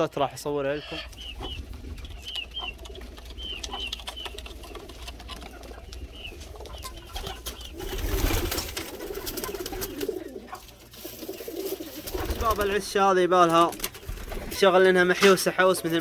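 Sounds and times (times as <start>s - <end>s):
pigeons chirping: 0.0s - 16.0s
pigeon cooing: 0.7s - 12.8s.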